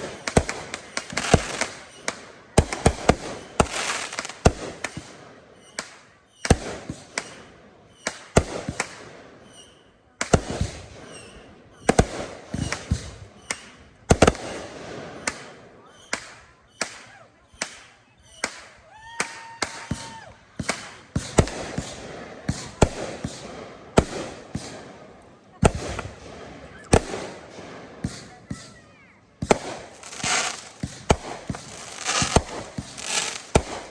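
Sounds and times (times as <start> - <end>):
firework booms: 0.0 - 5.2, 29.4 - 33.9
firework crackling: 0.0 - 5.2, 29.4 - 33.9.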